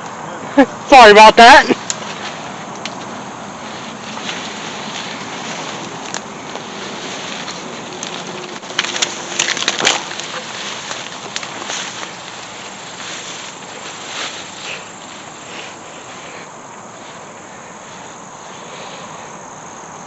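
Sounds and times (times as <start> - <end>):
insects buzzing: 0.0 - 20.0
footsteps through dry brush: 1.4 - 19.9
twigs snapping: 1.8 - 16.4.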